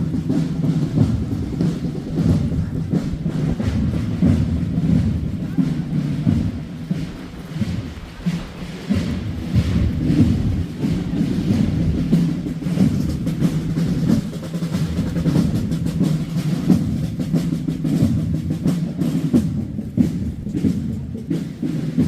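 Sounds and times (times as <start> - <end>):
drum roll: 0.0 - 22.0.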